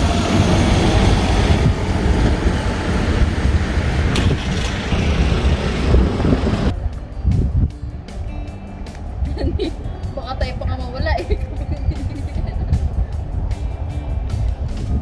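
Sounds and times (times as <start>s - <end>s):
vehicle road and engine noise: 0.0s - 15.0s.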